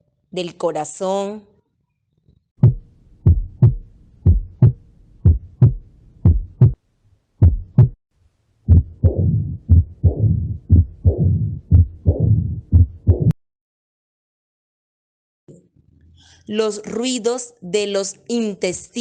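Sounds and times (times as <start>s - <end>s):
heartbeat through stethoscope: 2.6s - 6.8s, 7.4s - 8.0s, 8.7s - 13.4s
whooshing heart murmur: 2.6s - 6.8s, 7.4s - 8.0s, 8.7s - 13.4s.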